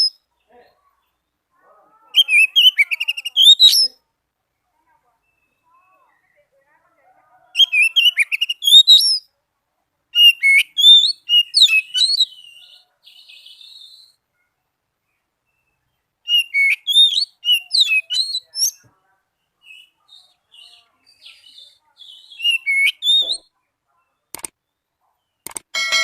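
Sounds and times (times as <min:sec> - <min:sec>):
faint buzzy bird trill: 0:00.0 - 0:09.4, 0:10.1 - 0:26.0
bird whistling and chattering: 0:02.2 - 0:04.0, 0:07.6 - 0:09.3, 0:10.2 - 0:14.2, 0:16.3 - 0:18.8, 0:21.2 - 0:23.5.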